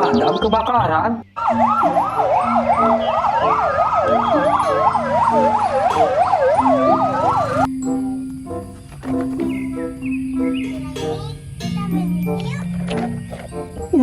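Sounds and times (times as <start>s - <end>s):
background music: 0.0s - 14.0s
fire truck siren wailing: 1.4s - 7.8s.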